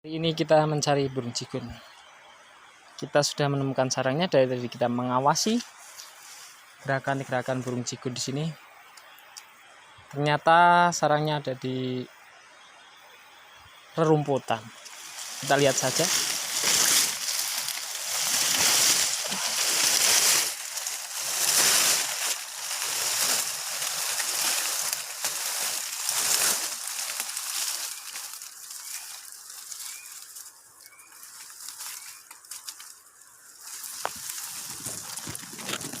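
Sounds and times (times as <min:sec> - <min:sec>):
grass rustling swishes: 0:05.5 - 0:07.4, 0:14.7 - 0:36.0.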